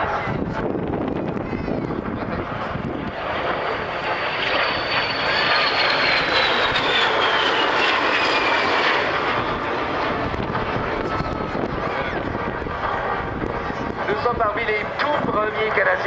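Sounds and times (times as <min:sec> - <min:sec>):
jet flying past with falling whine: 0:01.0 - 0:16.0.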